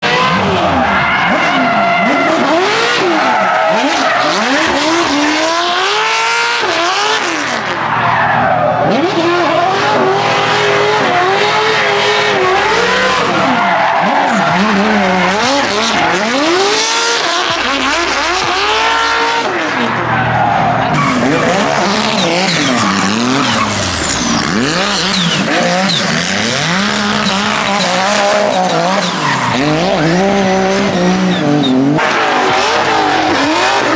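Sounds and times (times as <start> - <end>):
car engines revving: 0.0 - 33.9
tyres squealing: 12.1 - 17.2, 20.9 - 32.0.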